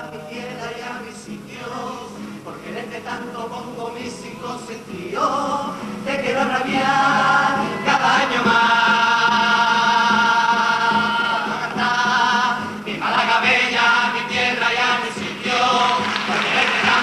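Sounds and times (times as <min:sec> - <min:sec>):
choir singing in harmony: 0:00.0 - 0:17.0.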